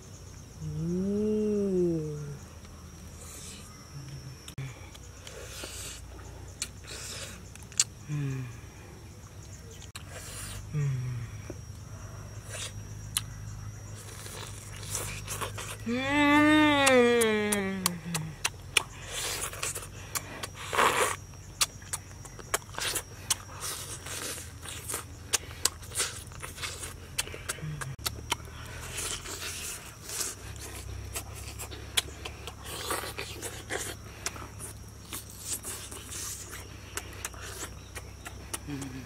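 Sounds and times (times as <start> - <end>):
chewing clicks and lip smacks: 17.8 - 20.6, 21.6 - 28.6, 30.1 - 39.0.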